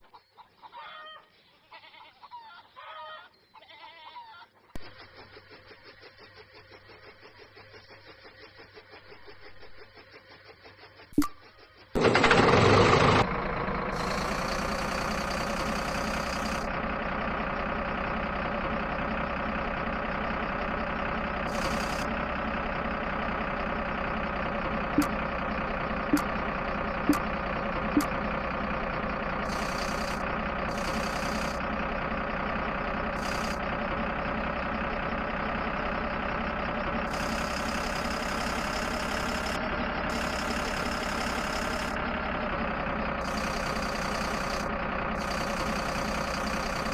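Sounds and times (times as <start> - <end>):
tractor engine idling: 4.8 - 46.9
short clicks: 11.2 - 11.4.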